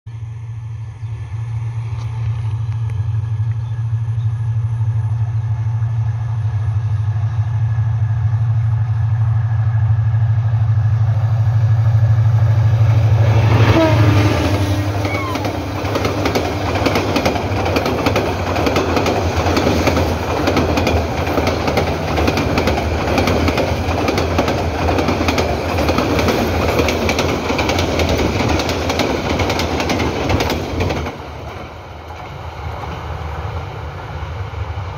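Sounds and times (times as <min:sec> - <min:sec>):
diesel locomotive engine drone: 0:00.1 - 0:34.9
train coaches rattling on track: 0:10.7 - 0:34.9.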